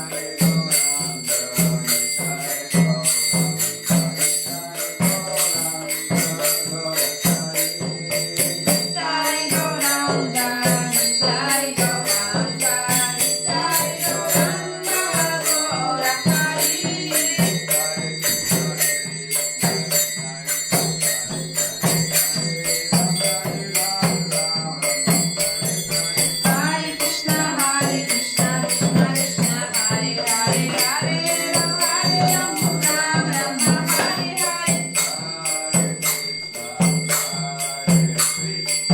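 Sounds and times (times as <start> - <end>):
hand cymbals ringing: 0.0 - 38.9
person singing: 4.5 - 19.8, 25.9 - 38.0.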